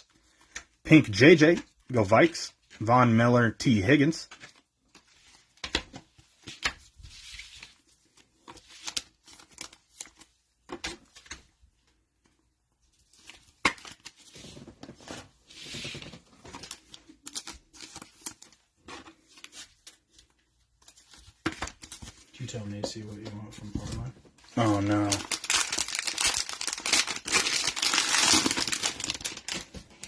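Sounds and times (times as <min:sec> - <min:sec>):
wrapper crinkling and tearing: 0:24.6 - 0:30.0.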